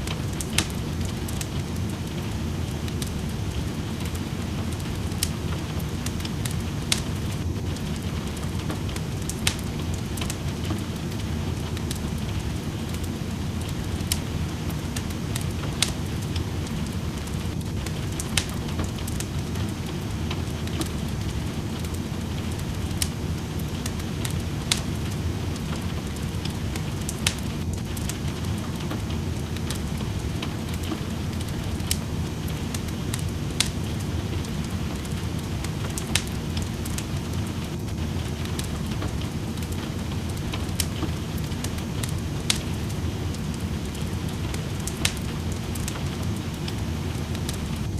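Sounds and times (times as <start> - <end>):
rain rushing: 0.0 - 47.9
wood fire crackling and popping: 0.0 - 47.9.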